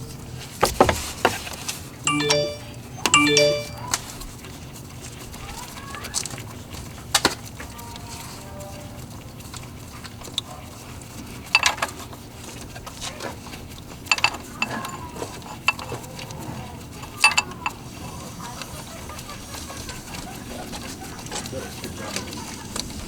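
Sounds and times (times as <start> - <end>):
metal tools and bolts clinking: 11.6 - 11.8, 17.2 - 17.7.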